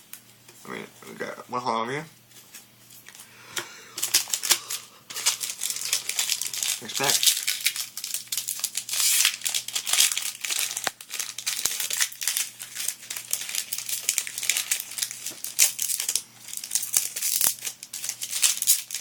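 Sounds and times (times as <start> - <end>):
plastic wrapper crinkling: 4.0 - 19.0.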